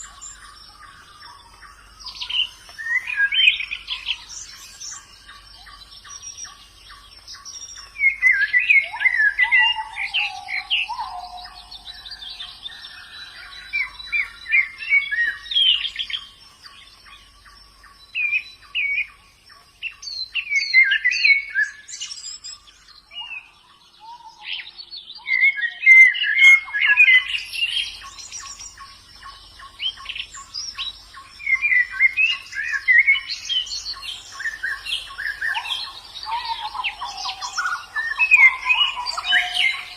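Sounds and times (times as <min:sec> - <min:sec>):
birds twittering chirps: 0:00.0 - 0:39.9.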